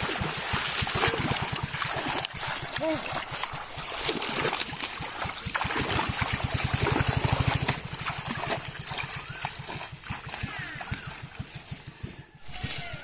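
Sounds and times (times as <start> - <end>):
water trickling and splashing: 0.0 - 11.8
small engine puttering past: 5.0 - 12.3.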